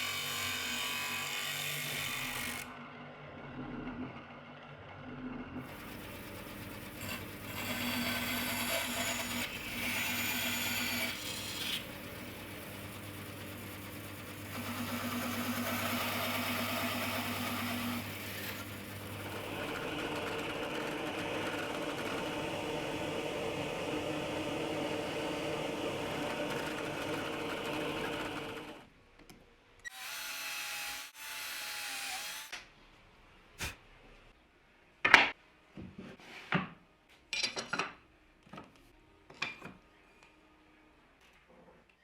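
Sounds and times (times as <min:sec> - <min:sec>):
power tool running: 0:05.6 - 0:28.8.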